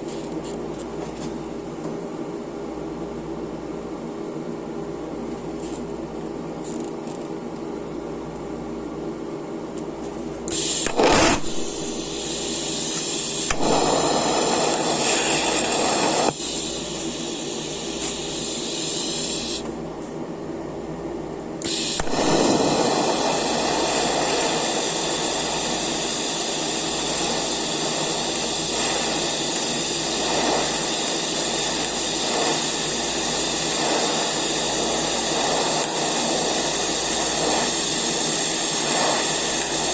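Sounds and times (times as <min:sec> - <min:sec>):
welder electrical hum: 0:00.0 - 0:39.9
welding arc hiss and buzz: 0:10.2 - 0:19.8, 0:21.6 - 0:39.9.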